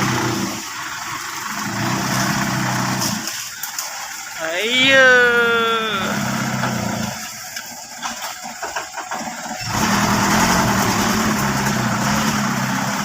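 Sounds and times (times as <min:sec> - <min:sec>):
truck engine running: 0:06.0 - 0:13.0.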